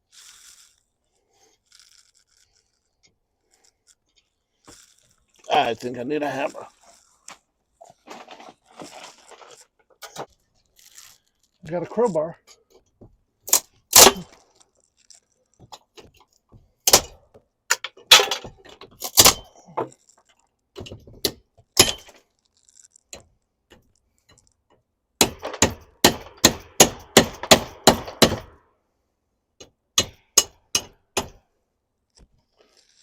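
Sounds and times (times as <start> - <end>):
crowbar knocking and prying: 15.7 - 19.9, 20.8 - 22.2, 30.0 - 31.4.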